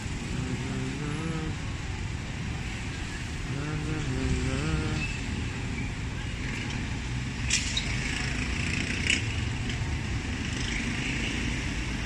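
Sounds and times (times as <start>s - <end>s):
person's voice: 0.3s - 1.6s, 3.5s - 5.0s.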